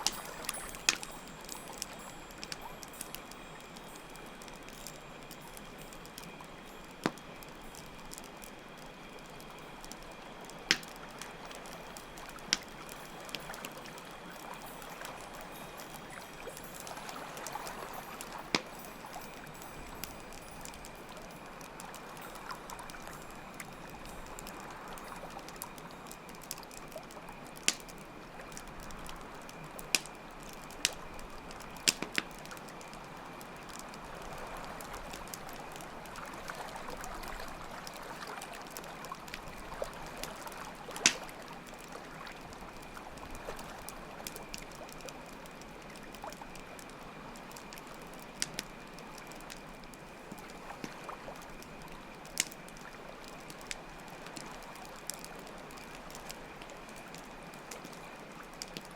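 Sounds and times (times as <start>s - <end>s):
cricket trill: 0.0s - 38.4s
campfire crackling and popping: 0.0s - 58.9s
trickling water: 0.0s - 58.9s.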